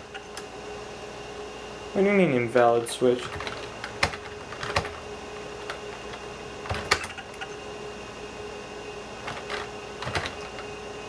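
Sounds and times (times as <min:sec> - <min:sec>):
computer hum: 0:00.0 - 0:11.0
computer keyboard keystrokes: 0:03.2 - 0:05.0, 0:09.3 - 0:10.7.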